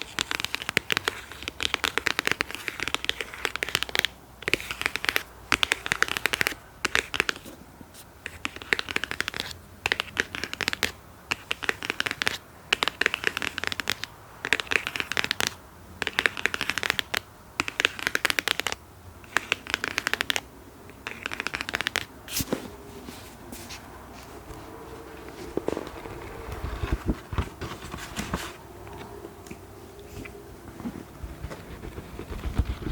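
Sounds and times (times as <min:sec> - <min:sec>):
quick scratching on an object: 0:31.2 - 0:32.9.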